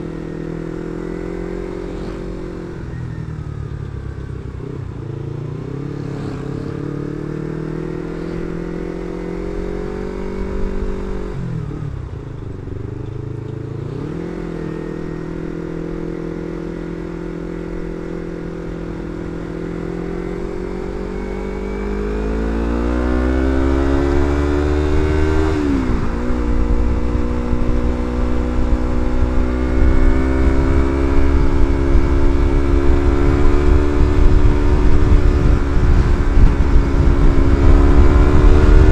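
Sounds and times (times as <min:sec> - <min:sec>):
motorcycle engine revving: 0:00.0 - 0:38.9
wind rumble on microphone: 0:17.6 - 0:38.9.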